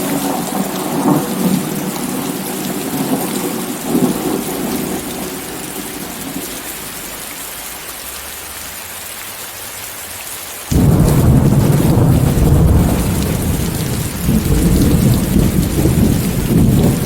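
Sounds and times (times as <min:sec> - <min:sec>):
deep thunder rumble: 0:00.0 - 0:06.6, 0:10.7 - 0:17.0
heavy rain hiss: 0:00.0 - 0:17.0.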